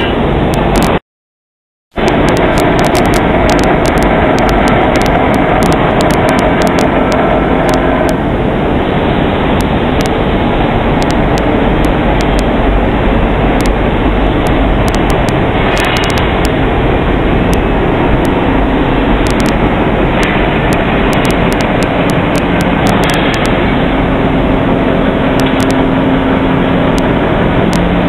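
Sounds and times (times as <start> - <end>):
sharp clicks: 0.5 - 1.0, 2.0 - 8.2, 9.6 - 10.2, 11.0 - 12.5, 14.4 - 16.6, 19.2 - 19.6, 20.2 - 23.6, 25.4 - 25.8.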